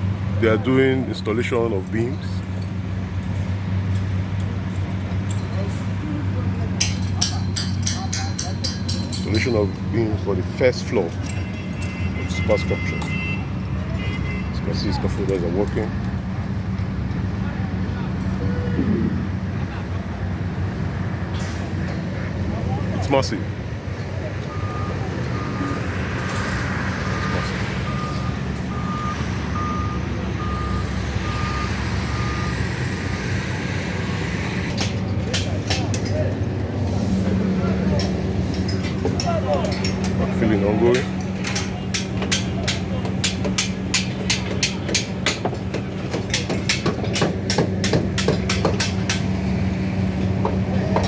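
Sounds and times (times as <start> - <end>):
engine humming: 0.0 - 51.0
hammering on steel: 6.8 - 9.6, 38.0 - 49.4
reversing alarm beeping: 24.4 - 33.3.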